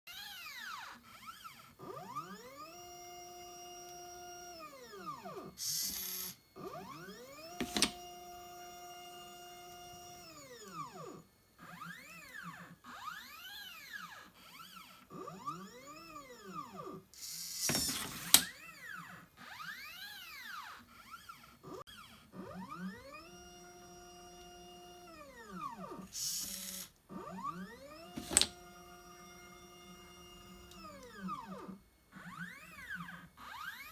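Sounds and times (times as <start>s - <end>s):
stepper motors whining: 0.1s - 33.9s.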